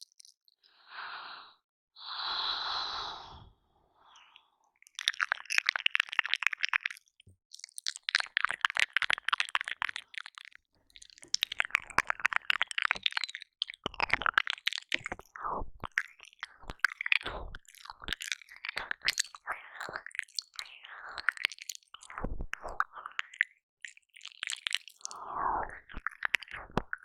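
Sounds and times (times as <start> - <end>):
soft breaths: 0.6 - 4.8
wet licking and smacking mouth clicks: 4.8 - 27.0.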